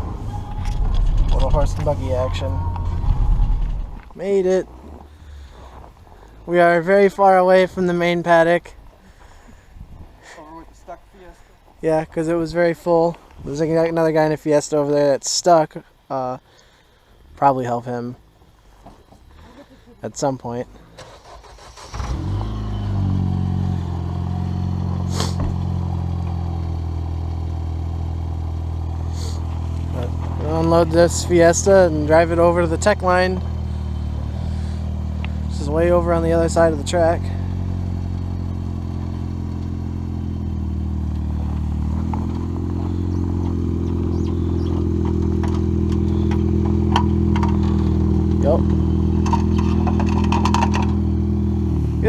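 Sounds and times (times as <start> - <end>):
car engine idling: 0.0 - 6.5, 20.7 - 52.0.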